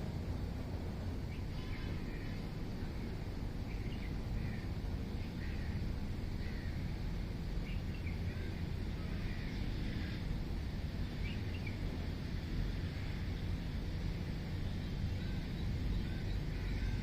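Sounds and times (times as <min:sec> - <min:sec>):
birds chirping: 0:01.2 - 0:13.4, 0:14.5 - 0:17.0.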